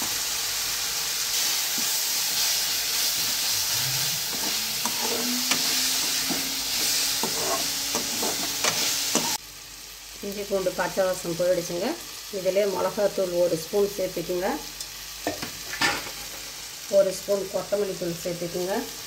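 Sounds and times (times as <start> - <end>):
paste sizzling in hot oil: 0.0 - 17.0
metal spoon scraping a pan: 1.7 - 9.4.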